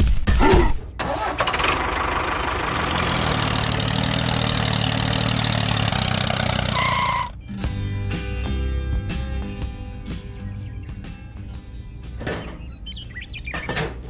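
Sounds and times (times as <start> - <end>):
engine starting with rattle: 1.0 - 7.3
engine running with low hum: 1.0 - 7.8, 11.0 - 14.0.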